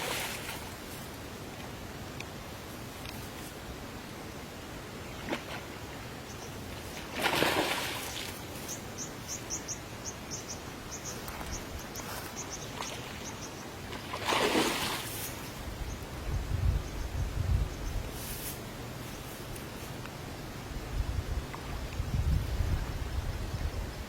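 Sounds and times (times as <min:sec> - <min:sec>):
water splashes: 0:00.0 - 0:01.1, 0:06.7 - 0:08.6, 0:12.7 - 0:15.6
small bird chirping: 0:08.6 - 0:13.6.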